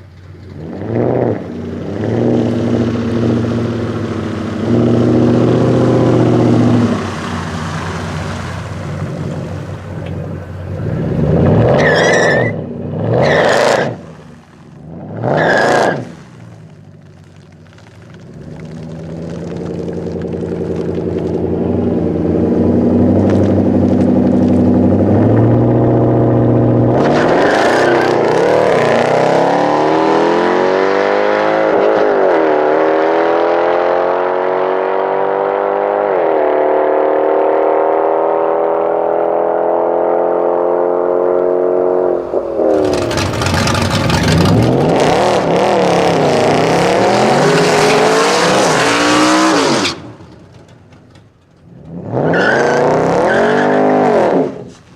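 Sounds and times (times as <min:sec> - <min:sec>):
car engine accelerating hard: 0:00.0 - 0:16.4, 0:18.6 - 0:54.8
race cars passing loudly: 0:21.3 - 0:51.2.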